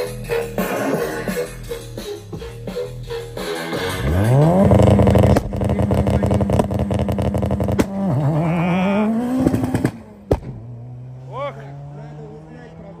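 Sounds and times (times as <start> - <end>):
car engine revving high: 3.7 - 13.0.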